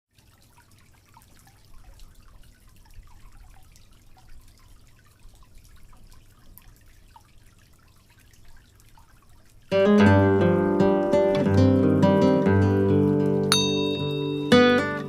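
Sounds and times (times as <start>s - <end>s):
water drops plinking: 9.7s - 15.0s.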